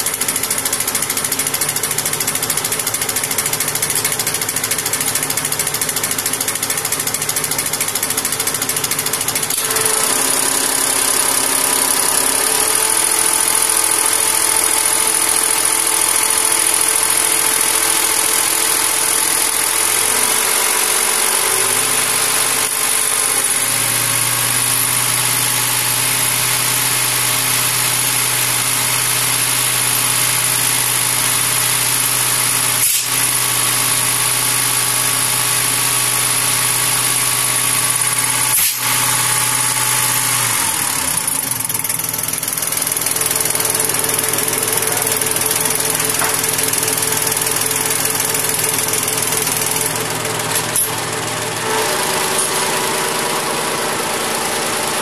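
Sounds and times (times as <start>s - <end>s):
tractor diesel engine running: 0.0s - 32.4s, 33.4s - 55.0s.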